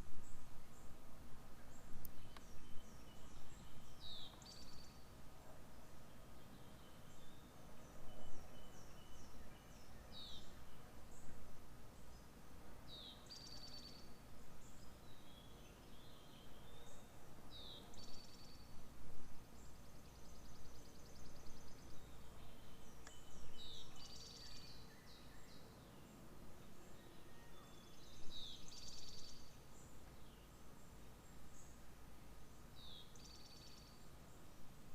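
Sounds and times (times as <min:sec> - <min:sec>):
bird song with falling note and trill: 0:01.8 - 0:05.1, 0:12.9 - 0:14.2, 0:19.4 - 0:30.6.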